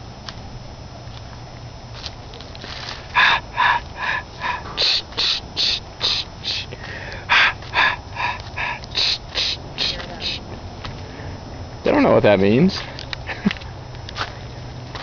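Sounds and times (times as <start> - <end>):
animal giving short calls: 3.2 - 6.7, 7.3 - 10.4.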